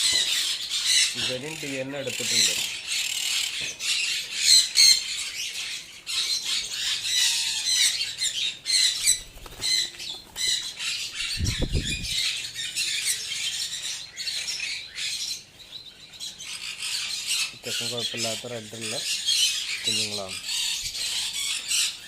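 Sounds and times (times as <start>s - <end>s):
conures squawking: 0.0s - 22.0s.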